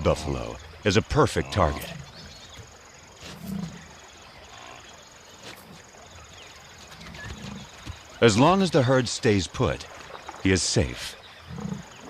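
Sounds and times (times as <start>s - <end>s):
insects buzzing: 0.0s - 12.0s
buffalo grunting: 3.2s - 3.9s, 11.4s - 12.0s.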